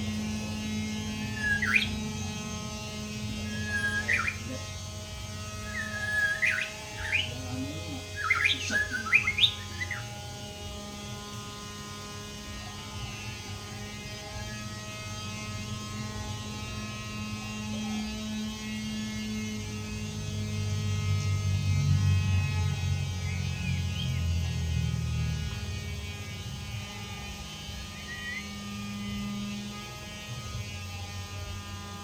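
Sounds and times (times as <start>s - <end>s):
electrical mains hum: 0.0s - 32.0s
bird whistled chirps: 1.2s - 2.2s, 3.4s - 4.6s, 5.6s - 7.4s, 8.1s - 10.2s, 27.9s - 28.7s.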